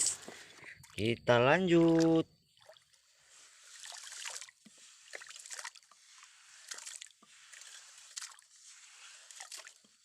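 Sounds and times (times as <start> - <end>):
water sloshing and trickling: 0.1 - 10.0
small splashes: 1.7 - 10.0
gritty sand scrapes: 5.9 - 10.0.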